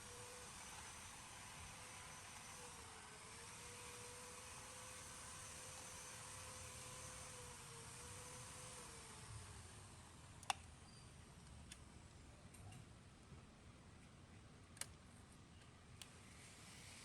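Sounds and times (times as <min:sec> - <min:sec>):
faint sharp clicks: 0:10.4 - 0:10.7.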